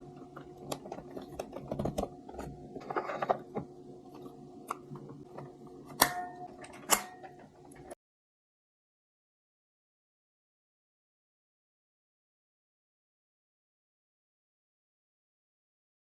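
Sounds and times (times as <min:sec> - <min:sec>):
faint steady hum: 0:00.0 - 0:08.0.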